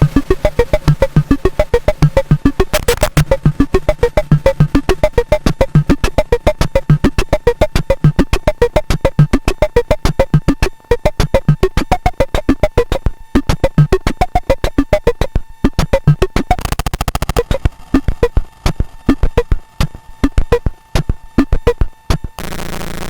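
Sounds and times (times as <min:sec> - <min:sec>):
low electronic thuds: 0:00.0 - 0:22.4
electronic drum clicking pattern: 0:00.0 - 0:23.0
pitched electronic blips: 0:00.0 - 0:23.0
steady high electronic tone: 0:00.0 - 0:23.0.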